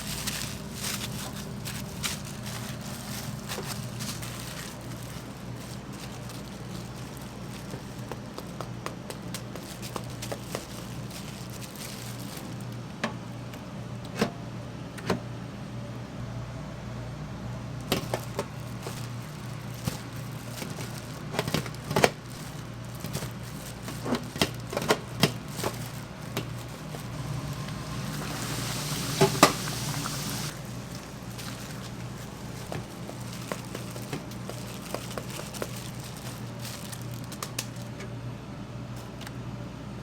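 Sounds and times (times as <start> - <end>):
steady low hum: 0.0 - 40.0
hiss: 27.2 - 30.5.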